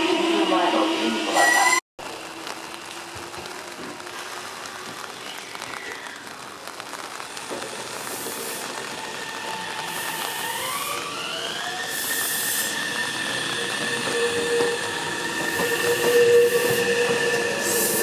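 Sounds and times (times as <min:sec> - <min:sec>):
electric train motors whining: 0:09.0 - 0:18.0.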